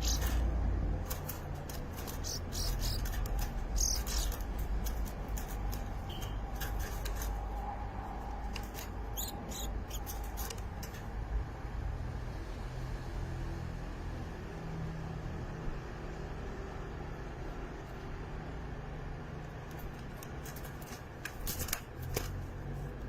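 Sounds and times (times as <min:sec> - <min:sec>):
high bird chirps: 0:00.0 - 0:00.4, 0:02.0 - 0:04.5, 0:09.1 - 0:10.2.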